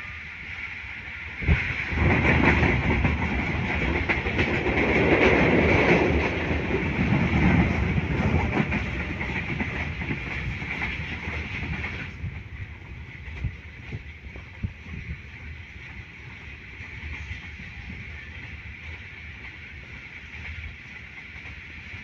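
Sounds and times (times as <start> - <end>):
passing train rush: 0.0 - 22.0
train wheels clicking: 0.9 - 22.0.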